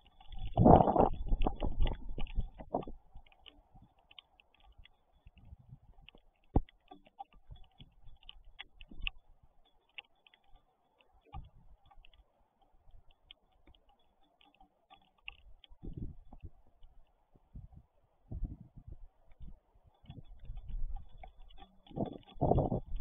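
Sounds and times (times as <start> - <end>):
raindrops tapping on camera: 0.0 - 12.2, 19.3 - 23.0.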